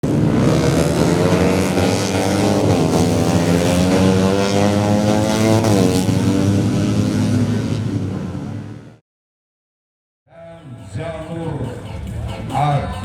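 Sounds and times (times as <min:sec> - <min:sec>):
motorcycle engine at high revs: 0:00.0 - 0:09.0.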